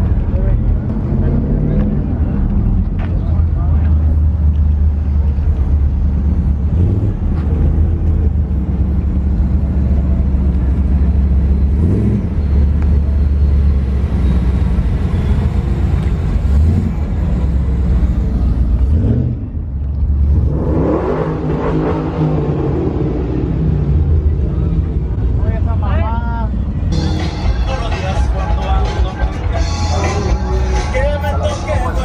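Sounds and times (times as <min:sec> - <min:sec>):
vehicle engine idling and revving: 0:00.0 - 0:32.0.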